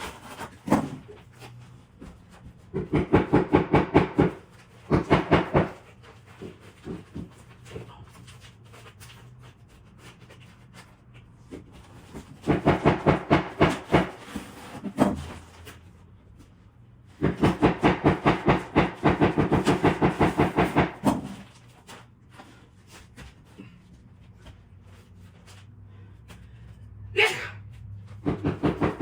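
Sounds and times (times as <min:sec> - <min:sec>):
rapid sharp knocks: 0:02.7 - 0:05.8, 0:12.5 - 0:14.2, 0:17.2 - 0:21.3, 0:28.2 - 0:29.0.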